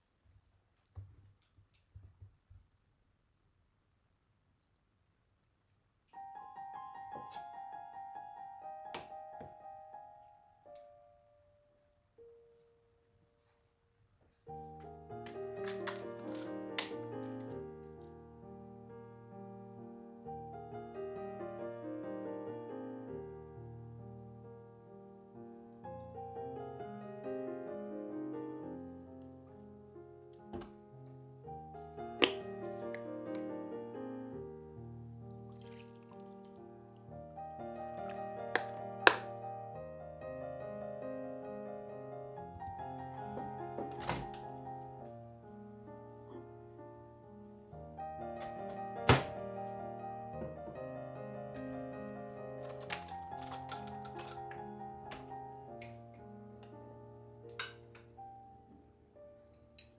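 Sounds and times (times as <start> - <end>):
soft piano music: 6.1 - 13.6, 14.4 - 59.9
sharp thunk: 49.0 - 49.4.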